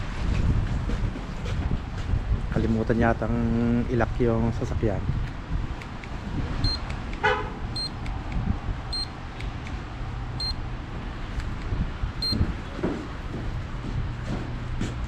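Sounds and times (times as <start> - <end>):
low vehicle rumble: 0.0 - 15.0
high-pitched electronic beep: 6.6 - 6.8
horn toot: 7.2 - 7.9.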